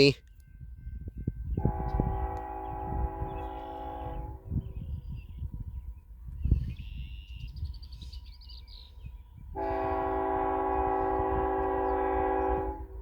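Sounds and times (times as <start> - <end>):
locomotive air horn blast: 1.6 - 4.7, 9.5 - 13.0.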